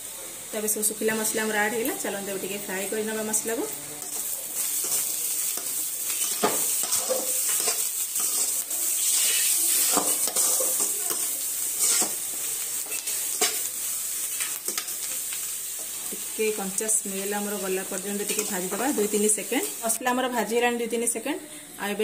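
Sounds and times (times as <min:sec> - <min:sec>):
spices sizzling in oil: 0:00.0 - 0:21.3
metal spatula scraping pan: 0:04.0 - 0:12.2.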